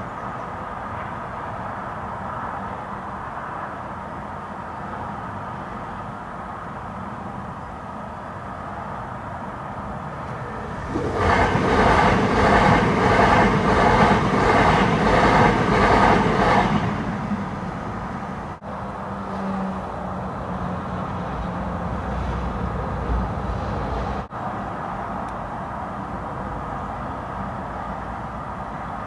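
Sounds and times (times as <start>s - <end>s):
electric train passing: 0.0s - 29.0s
clatter of train wheels: 10.3s - 17.4s.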